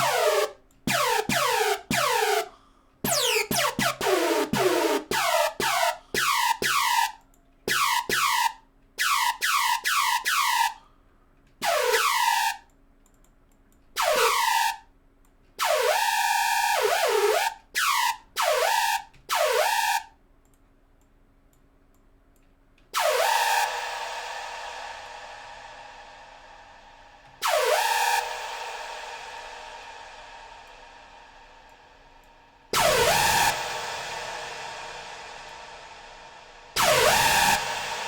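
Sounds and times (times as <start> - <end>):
synthesizer notes dropping in pitch: 0.0 - 2.5, 3.1 - 6.9.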